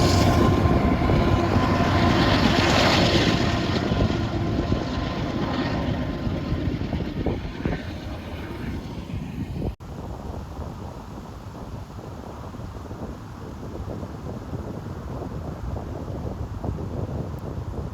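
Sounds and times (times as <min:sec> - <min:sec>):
freight train rumbling past: 0:00.0 - 0:05.0.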